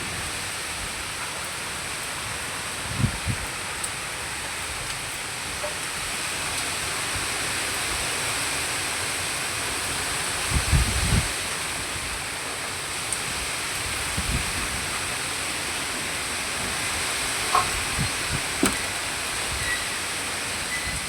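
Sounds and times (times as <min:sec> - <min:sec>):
heavy rain: 0:00.0 - 0:21.0
wind: 0:00.0 - 0:21.0
wind buffeting microphone: 0:10.4 - 0:11.4, 0:13.8 - 0:15.2, 0:16.5 - 0:19.8.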